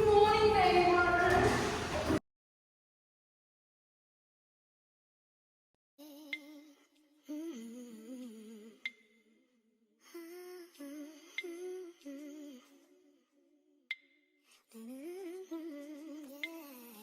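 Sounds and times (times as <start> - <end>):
person humming a melody: 6.0 - 8.9.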